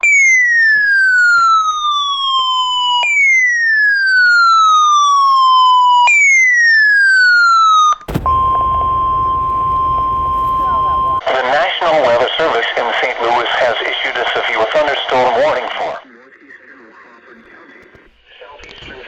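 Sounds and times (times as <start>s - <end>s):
electronic siren sweeps: 8.1s - 11.2s
radio static: 8.1s - 11.2s
weather radio alarm tone: 8.1s - 11.2s.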